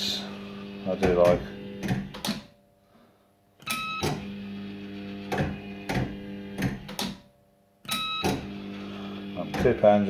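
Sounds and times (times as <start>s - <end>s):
electronic buzzing tone: 3.6s - 6.8s, 7.9s - 9.6s.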